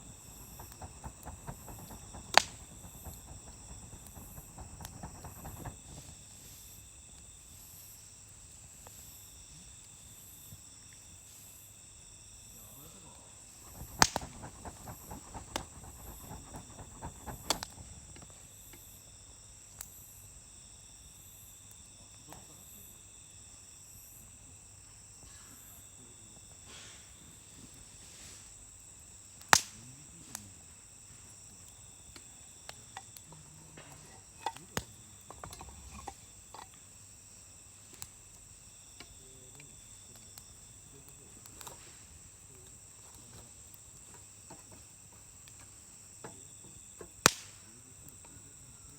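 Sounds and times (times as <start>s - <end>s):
campfire wood crackling: 0.0s - 6.7s, 13.5s - 18.4s, 29.4s - 29.8s, 30.5s - 46.1s, 46.8s - 48.2s
sharp pops from fire: 0.0s - 6.7s, 13.6s - 18.3s, 29.4s - 30.4s, 47.0s - 47.7s
insects trilling: 0.0s - 48.9s.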